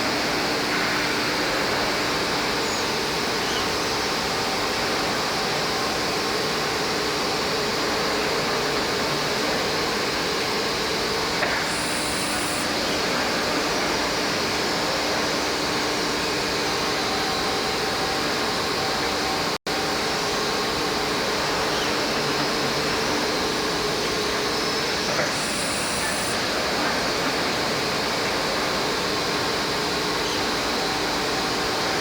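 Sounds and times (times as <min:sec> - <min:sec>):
sanding machine running: 0:21.4 - 0:28.2.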